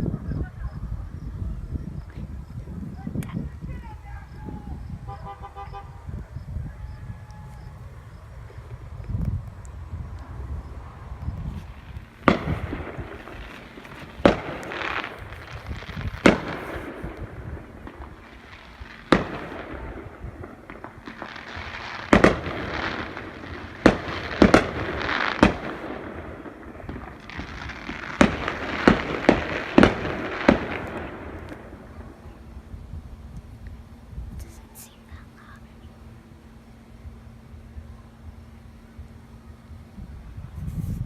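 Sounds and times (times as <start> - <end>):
fireworks crackling: 2.0 - 39.9
fireworks bangs: 2.9 - 32.8.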